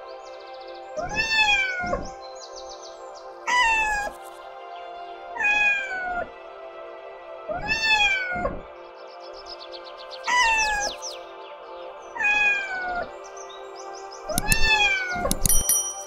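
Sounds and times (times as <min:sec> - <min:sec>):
background music: 0:00.0 - 0:16.0
cat meowing: 0:01.0 - 0:02.0.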